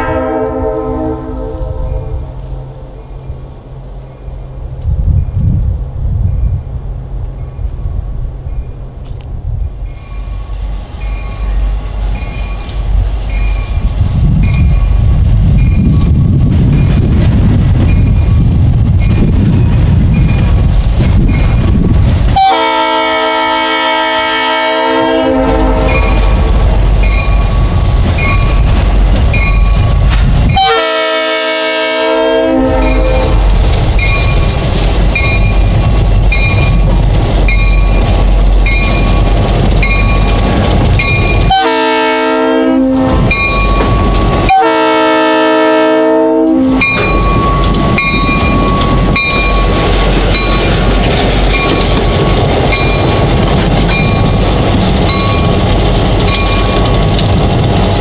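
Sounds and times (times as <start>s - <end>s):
locomotive horn blasts: 0.0s - 2.8s, 22.4s - 26.4s, 30.6s - 33.4s, 41.5s - 43.4s, 44.0s - 47.7s
locomotive engine rumble: 0.0s - 58.0s.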